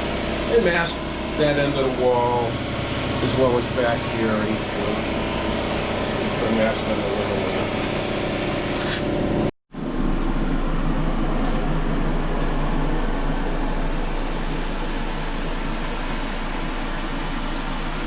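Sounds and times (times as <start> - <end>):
fan whirring and hissing: 0.0 - 18.0
low hum: 0.0 - 18.0.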